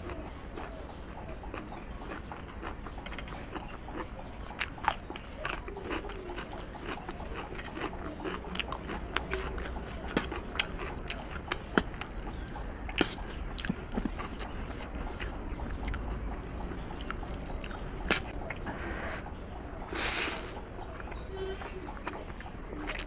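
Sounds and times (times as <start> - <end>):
crunchy onion bites: 0.0 - 15.3
mouth clicks: 0.0 - 23.0
wet chewing of noodles: 0.0 - 23.0.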